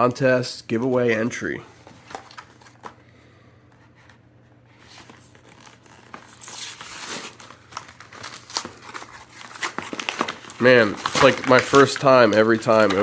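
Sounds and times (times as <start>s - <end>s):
packaging crinkled and torn open: 5.2s - 13.0s.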